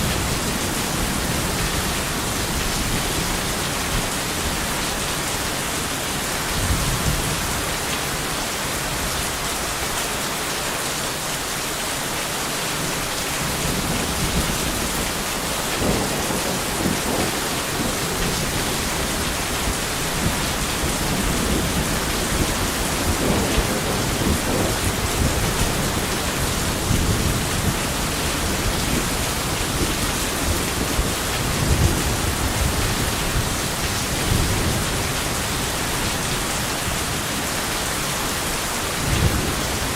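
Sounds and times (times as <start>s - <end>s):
heavy rain: 0.0s - 39.9s
thunder rumbling: 12.9s - 37.2s.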